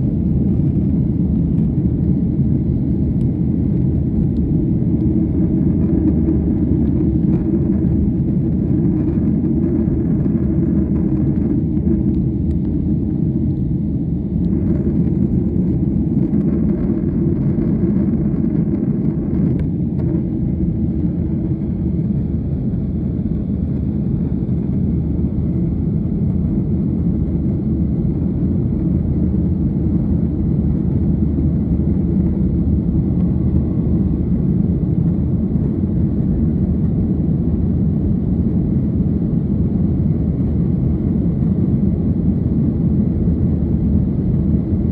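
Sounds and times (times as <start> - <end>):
jet airliner cabin rumble: 0.0 - 44.9.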